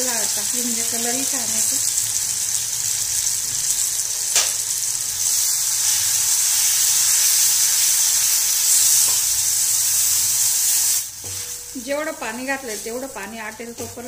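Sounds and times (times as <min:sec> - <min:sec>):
paste sizzling in hot oil: 0:00.0 - 0:14.0.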